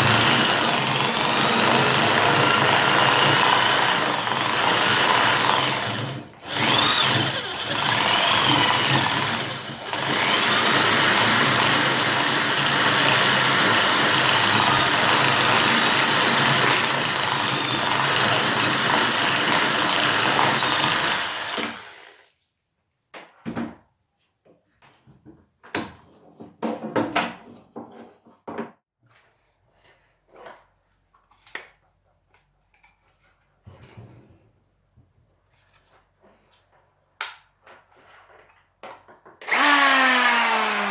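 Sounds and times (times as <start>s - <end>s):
power tool cutting wood: 0.0s - 22.3s, 39.5s - 40.9s.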